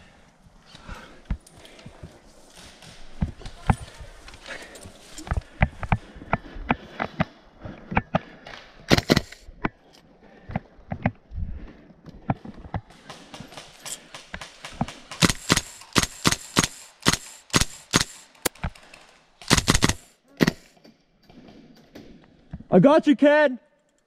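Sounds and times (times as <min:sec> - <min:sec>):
airsoft gun shots: 0:15.2 - 0:18.2, 0:19.5 - 0:20.6.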